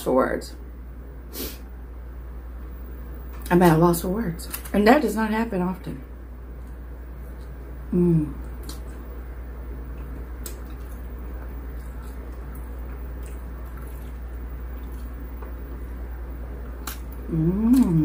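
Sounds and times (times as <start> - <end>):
steady low hum: 0.0 - 18.0
wet chewing mouth sounds: 9.9 - 16.0.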